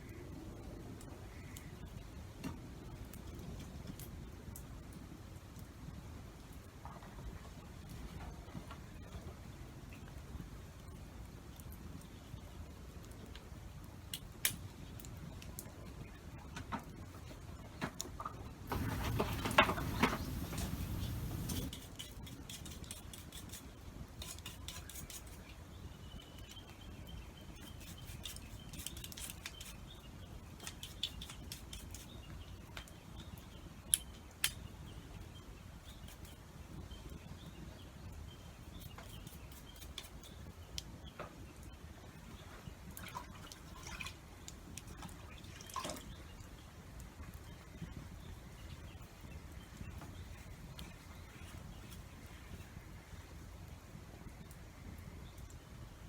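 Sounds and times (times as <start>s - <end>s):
rain dripping: 18.7s - 21.7s
low hiss: 18.7s - 21.8s.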